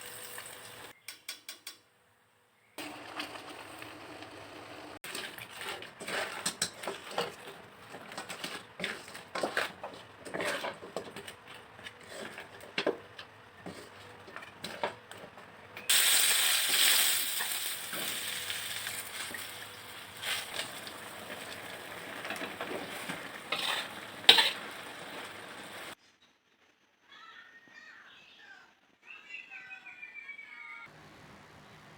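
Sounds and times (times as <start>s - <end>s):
food handling clicks and crackles: 5.0s - 15.9s, 17.9s - 25.3s.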